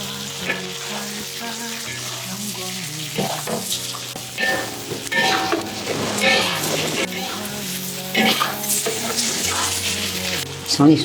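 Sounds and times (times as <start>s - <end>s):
food sizzling in a wok: 0.0s - 11.0s
spatula scraping a wok: 3.2s - 10.5s.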